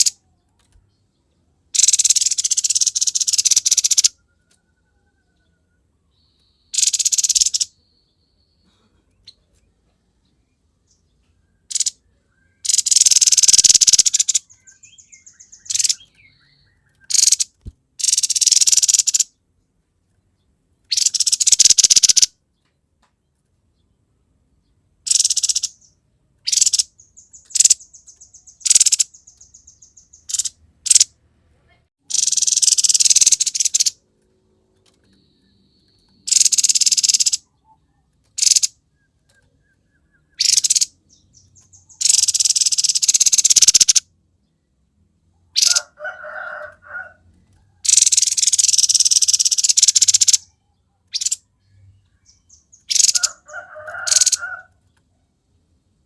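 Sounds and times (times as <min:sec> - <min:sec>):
bird harsh chattering song: 0:00.0 - 0:00.2, 0:01.7 - 0:04.5, 0:06.2 - 0:09.5, 0:10.9 - 0:19.4, 0:20.9 - 0:22.4, 0:25.0 - 0:31.1, 0:32.0 - 0:34.0, 0:35.1 - 0:44.0, 0:45.5 - 0:46.0, 0:47.8 - 0:54.7
dry rattling bird trills: 0:01.7 - 0:05.3, 0:06.6 - 0:07.8, 0:11.6 - 0:19.4, 0:20.9 - 0:22.3, 0:25.0 - 0:31.1, 0:32.0 - 0:34.0, 0:34.8 - 0:44.0, 0:45.5 - 0:50.5, 0:51.1 - 0:51.4, 0:52.2 - 0:54.9.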